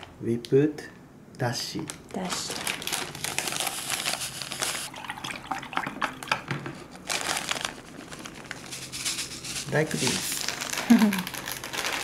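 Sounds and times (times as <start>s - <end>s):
foil packet crinkling: 1.9s - 4.9s, 6.8s - 12.0s.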